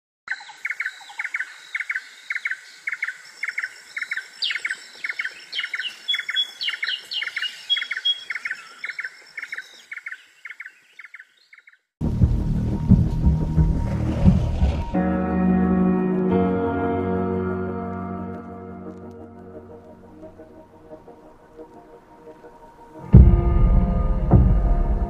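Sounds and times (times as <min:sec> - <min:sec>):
small birds chirping: 0:00.3 - 0:12.0.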